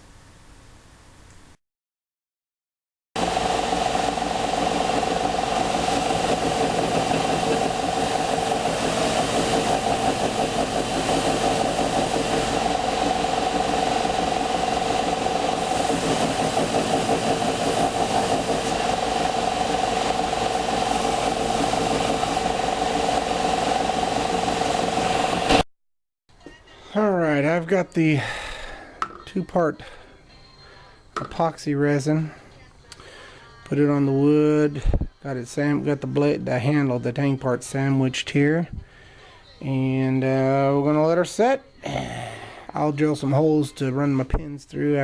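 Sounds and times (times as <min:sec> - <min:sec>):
electric power tool humming: 0:03.2 - 0:25.6.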